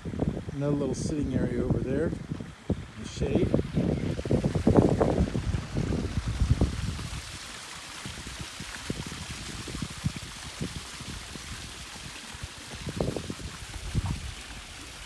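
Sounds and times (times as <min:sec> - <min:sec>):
waterfall splashing: 0:03.6 - 0:15.0.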